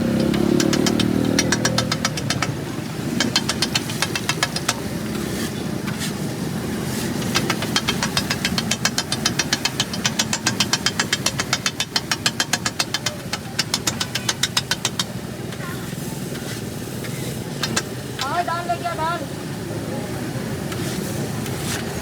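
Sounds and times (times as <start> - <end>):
metal spatulas clacking on griddle: 0.0 - 6.1, 6.9 - 15.6, 17.6 - 18.4
low rumble of street noise: 0.0 - 22.0.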